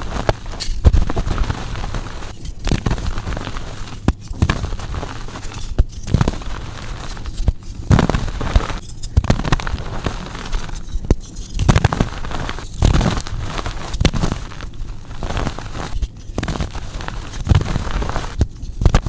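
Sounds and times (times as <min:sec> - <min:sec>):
chalk crunching and crackling: 0:00.0 - 0:19.0.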